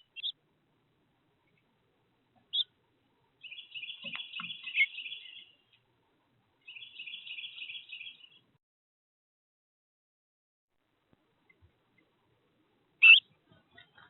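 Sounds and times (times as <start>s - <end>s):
songbird singing: 0.0s - 0.4s, 1.4s - 5.9s, 6.6s - 8.6s, 13.0s - 14.0s.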